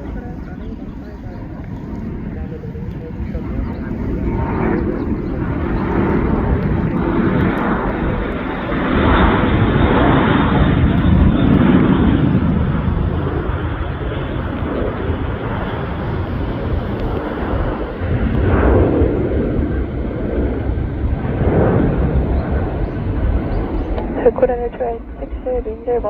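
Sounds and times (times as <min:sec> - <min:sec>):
jet engines roaring: 0:00.0 - 0:26.0.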